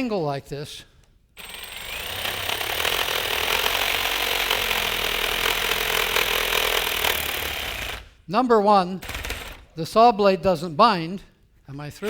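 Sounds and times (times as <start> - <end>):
reciprocating saw cutting wood: 1.4 - 8.1.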